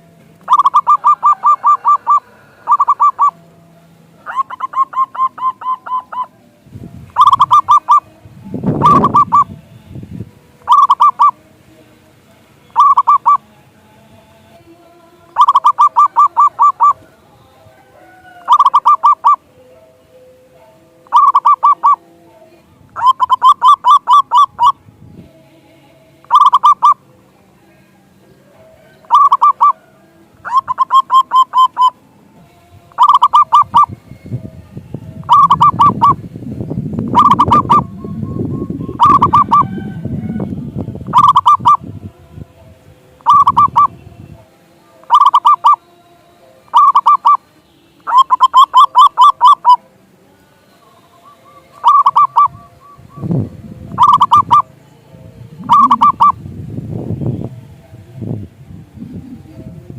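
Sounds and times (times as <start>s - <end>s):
dove cooing: 0.0s - 3.4s, 4.2s - 6.4s, 7.1s - 8.1s, 8.7s - 9.5s, 10.6s - 11.4s, 12.7s - 13.4s, 15.3s - 17.1s, 17.8s - 19.4s, 21.0s - 22.0s, 23.0s - 24.8s, 26.2s - 27.0s, 28.5s - 32.0s, 32.9s - 34.0s, 35.2s - 36.2s, 37.1s - 41.8s, 43.2s - 44.0s, 45.0s - 45.8s, 46.7s - 47.4s, 48.1s - 49.9s, 51.1s - 56.4s
low rumbling background noise: 0.0s - 18.5s, 27.0s - 45.1s, 49.8s - 59.9s.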